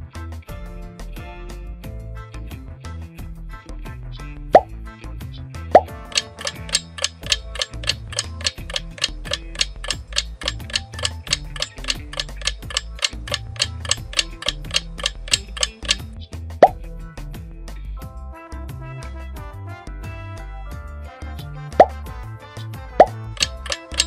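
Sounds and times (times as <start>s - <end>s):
light background music: 0.0s - 24.0s
countdown clock ticking: 5.8s - 16.8s, 23.0s - 24.0s.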